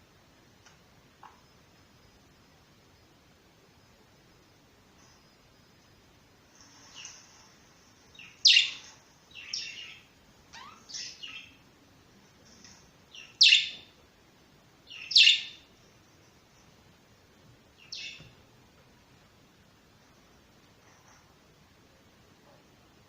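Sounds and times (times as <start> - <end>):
budgerigars chirping: 8.1 - 11.6, 13.1 - 13.9, 14.9 - 15.7, 17.8 - 18.3.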